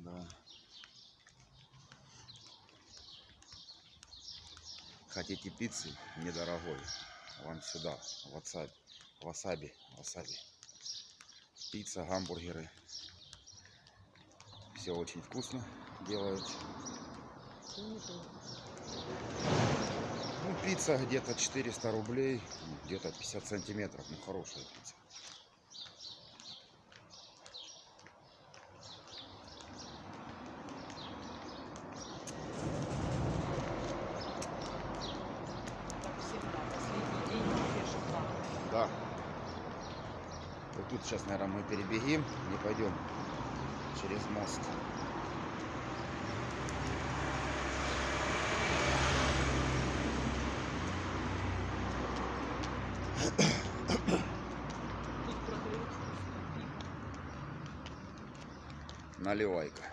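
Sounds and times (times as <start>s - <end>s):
small birds chirping: 0.0s - 59.9s
vehicle passing: 14.7s - 24.0s, 29.3s - 59.7s
rumbling noise: 32.2s - 34.9s.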